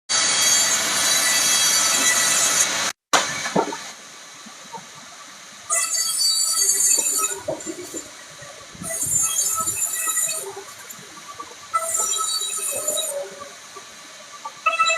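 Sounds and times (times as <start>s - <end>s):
machine cutting wood hissing whine: 11.7s - 13.4s.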